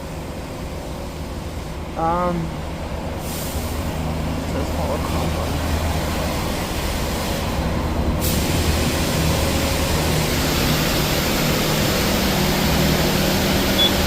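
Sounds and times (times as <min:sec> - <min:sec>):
car engine idling: 0:00.0 - 0:14.0
rushing spray noise: 0:03.2 - 0:14.0.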